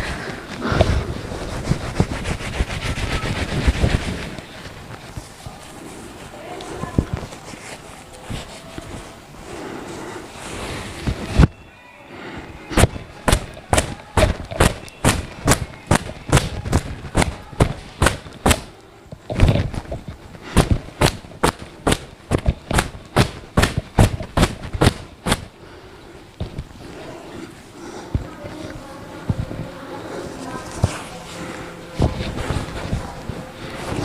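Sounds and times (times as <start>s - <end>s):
towel slapping wet hair: 20.5s - 25.5s.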